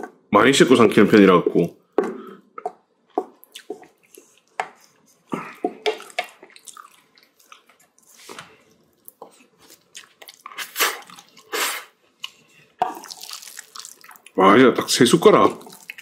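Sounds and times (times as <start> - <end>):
wet chewing mouth sounds: 2.5 - 14.4, 15.5 - 16.0.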